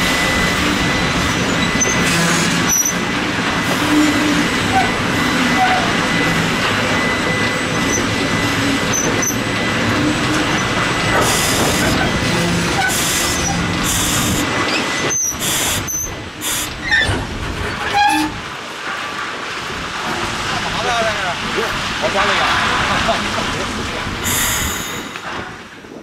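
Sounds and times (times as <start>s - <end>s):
steel wheels grinding on rail: 0.0s - 26.0s.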